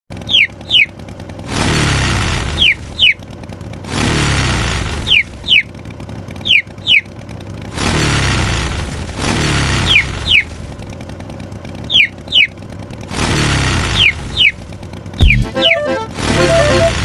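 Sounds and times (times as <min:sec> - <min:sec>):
harsh engine-like rumbling bursts: 0:00.1 - 0:17.0
cartoon chick peeping: 0:00.2 - 0:00.9, 0:02.6 - 0:03.2, 0:05.0 - 0:05.7, 0:06.4 - 0:07.1, 0:11.9 - 0:12.6, 0:15.2 - 0:17.0.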